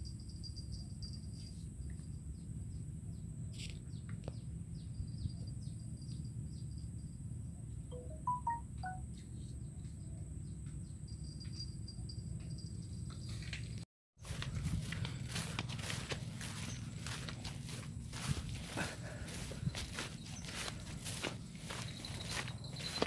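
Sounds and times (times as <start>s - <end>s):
steady low rumble: 14.3s - 22.7s.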